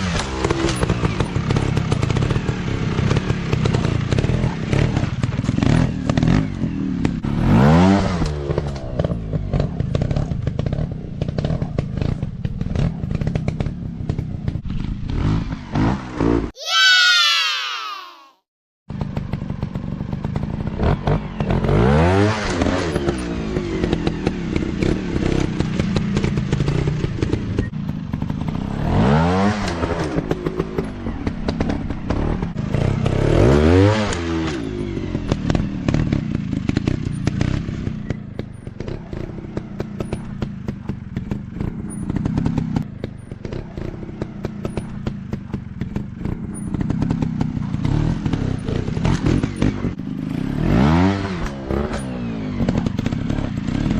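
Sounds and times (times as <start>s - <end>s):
dirt bike engines revving: 19.0s - 53.9s.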